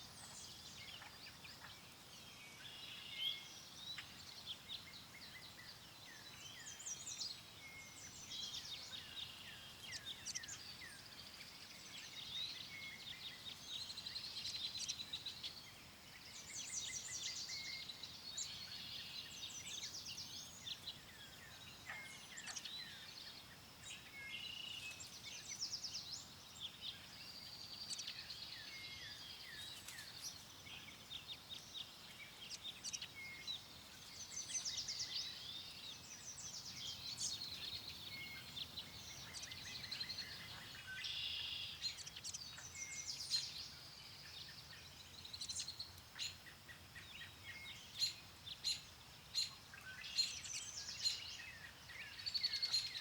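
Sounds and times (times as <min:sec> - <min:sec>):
faint background hiss: 0:00.0 - 0:53.0
songbirds singing and chirping: 0:00.0 - 0:53.0.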